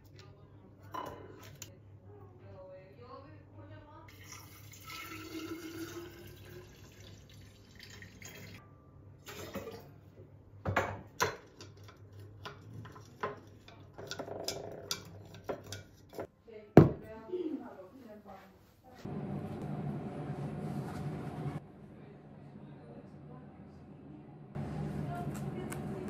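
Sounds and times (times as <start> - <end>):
water running from a tap: 4.1 - 8.6.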